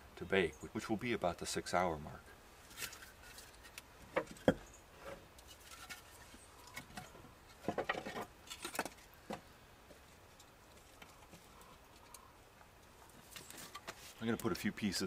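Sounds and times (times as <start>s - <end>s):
firewood pieces knocking together: 2.7s - 9.5s.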